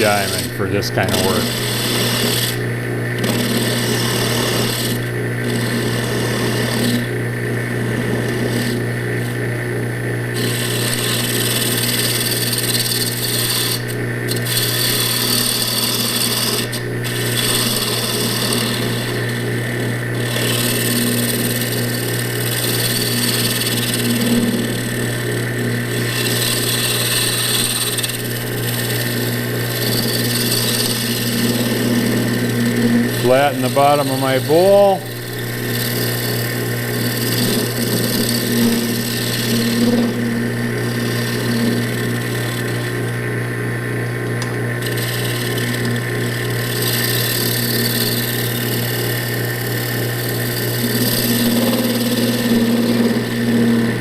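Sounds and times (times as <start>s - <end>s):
lathe motor hum: 0.0s - 54.0s
tool scraping spinning wood: 0.0s - 54.0s.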